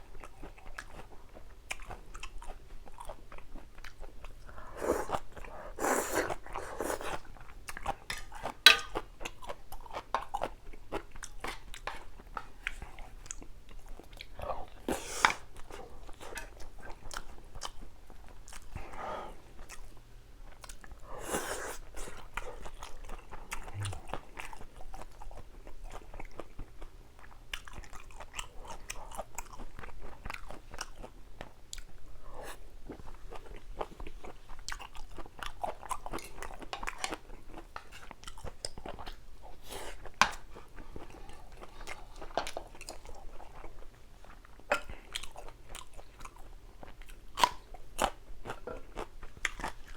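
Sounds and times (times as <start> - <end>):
biting and chewing food: 21.9 - 32.0, 32.9 - 49.9.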